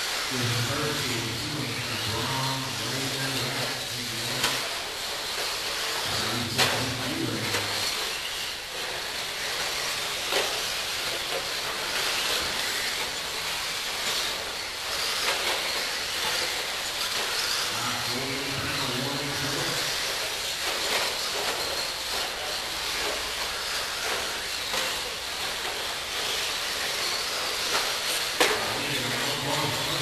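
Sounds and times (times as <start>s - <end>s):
rc trucks motors and tyres hissing: 0.0s - 30.0s
person speaking: 28.4s - 30.0s.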